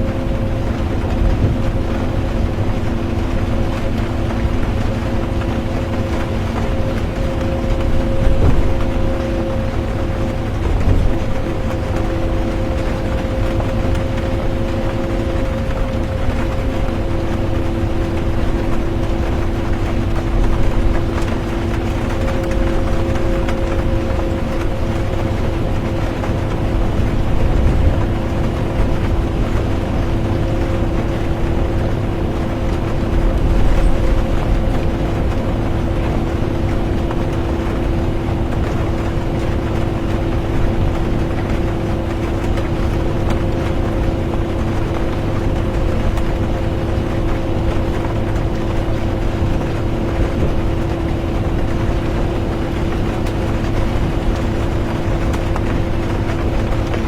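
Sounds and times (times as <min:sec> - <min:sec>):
bus engine and road rumble: 0:00.0 - 0:57.0
droning hum: 0:00.0 - 0:57.0.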